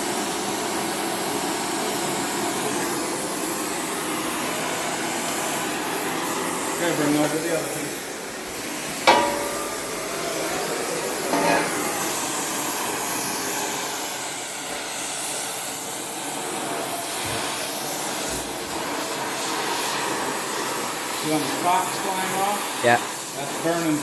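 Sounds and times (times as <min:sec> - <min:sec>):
welding hiss and crackle: 0:00.0 - 0:24.0
metal piece clanking: 0:09.0 - 0:10.6, 0:11.2 - 0:12.2.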